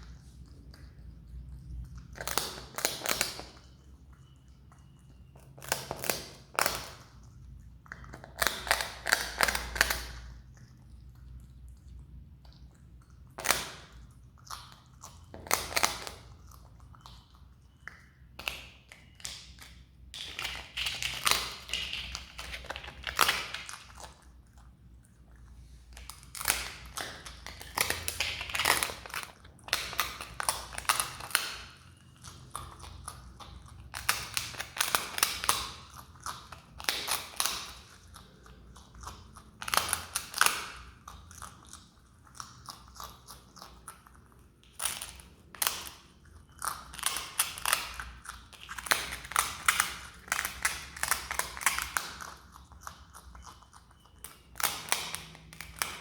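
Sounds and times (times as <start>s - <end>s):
marmot crunching rice cake: 0.0s - 56.0s.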